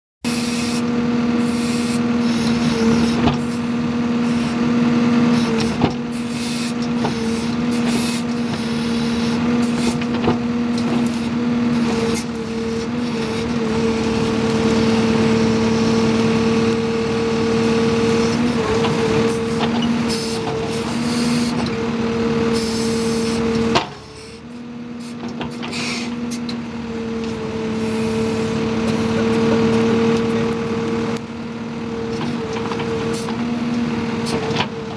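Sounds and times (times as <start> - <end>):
backhoe engine droning: 0.2 - 34.9.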